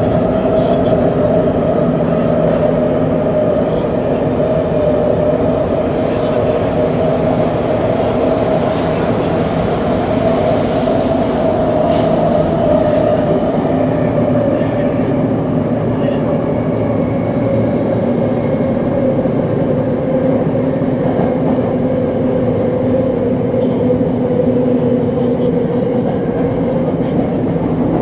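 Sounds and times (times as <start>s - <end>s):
subway train rolling rumble: 0.0s - 28.0s.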